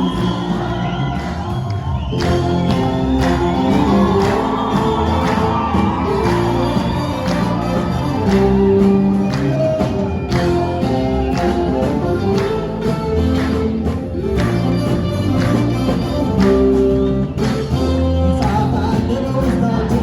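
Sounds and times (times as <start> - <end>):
audience crowd noise: 0.0 - 20.0
band with percussion beat: 0.0 - 20.0
person singing: 17.8 - 20.0.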